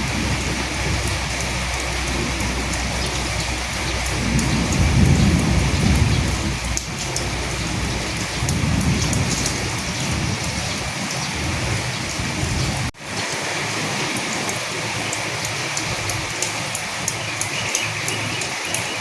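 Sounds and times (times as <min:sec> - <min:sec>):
low rumble: 0:00.0 - 0:12.9
heavy rain falling: 0:00.0 - 0:19.0.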